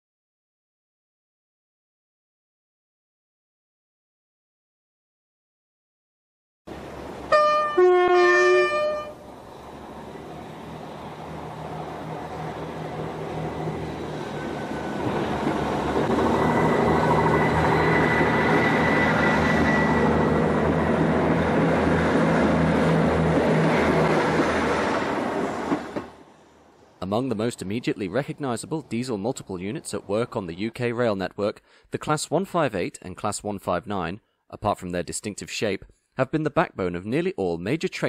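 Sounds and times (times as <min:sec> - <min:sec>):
diesel train running past: 0:06.7 - 0:27.0
two-tone train horn: 0:07.3 - 0:09.3.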